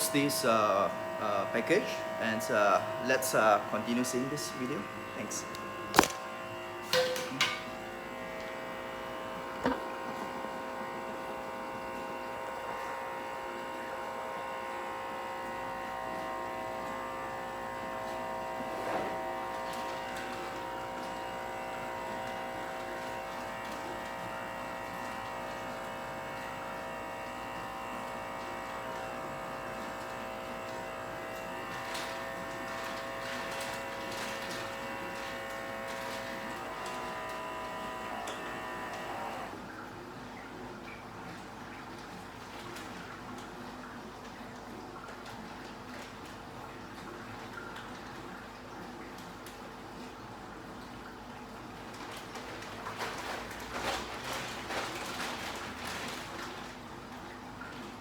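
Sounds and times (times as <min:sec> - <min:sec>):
air pump buzzing: 0:00.0 - 0:39.7.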